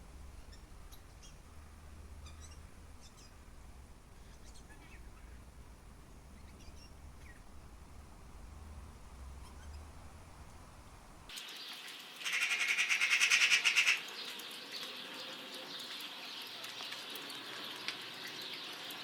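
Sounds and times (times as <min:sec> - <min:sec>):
low wind rumble: 0:00.0 - 0:11.3
birds chirping faintly: 0:00.0 - 0:19.0.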